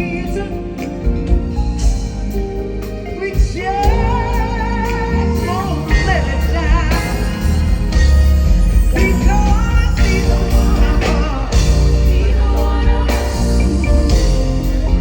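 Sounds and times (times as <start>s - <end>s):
band with strong bass: 0.0s - 15.0s
person singing with vibrato: 3.0s - 15.0s.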